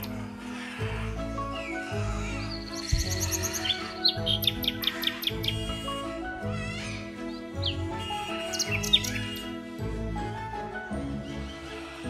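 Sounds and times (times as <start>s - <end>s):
rapid high bird chirps: 0.0s - 9.6s
background music with held notes: 0.0s - 12.0s.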